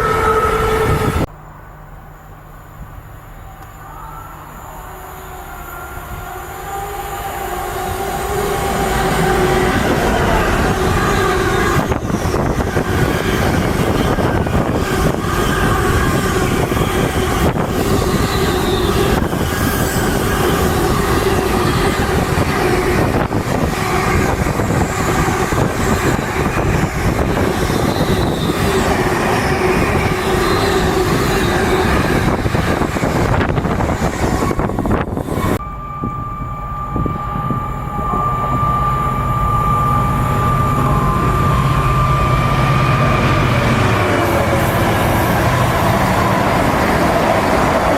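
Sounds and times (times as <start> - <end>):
train on tracks: 0.0 - 47.9
steady pitched tones: 34.6 - 47.9.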